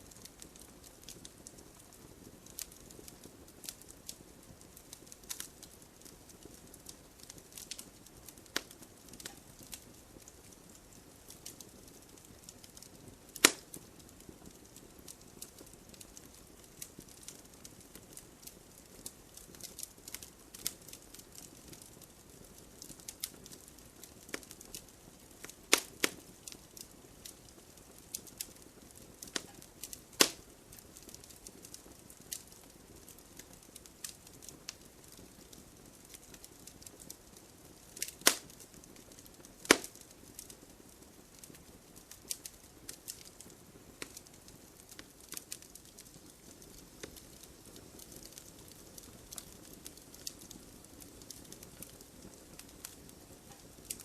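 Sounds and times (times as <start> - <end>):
campfire crackling and popping: 0.0 - 54.0
faint hiss of flame: 0.0 - 54.0.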